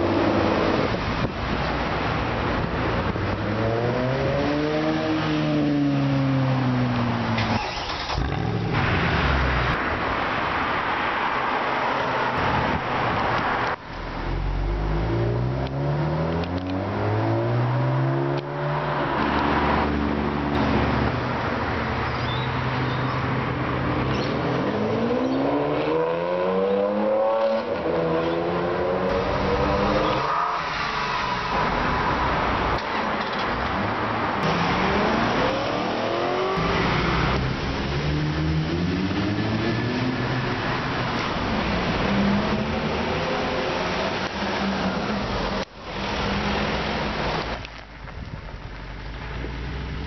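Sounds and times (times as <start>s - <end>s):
exhaust and road roar: 0.0s - 50.0s
sports car engines accelerating: 12.2s - 21.2s, 23.4s - 32.9s, 33.7s - 47.4s.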